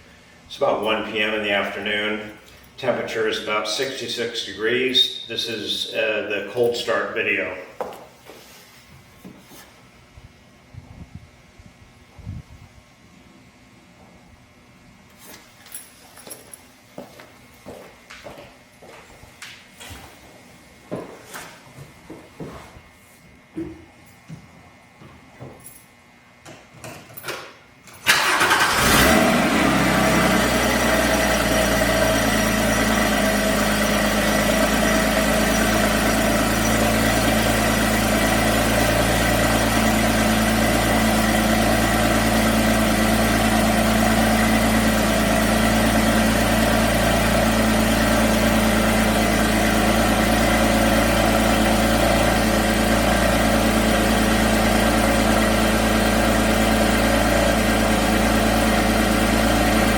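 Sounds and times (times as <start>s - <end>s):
vehicle engine starting and idling: 28.0s - 59.9s.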